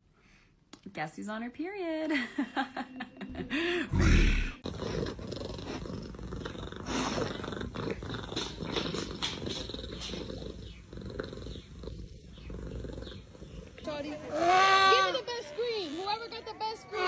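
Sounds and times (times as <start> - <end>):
cat purring: 4.5 - 14.1.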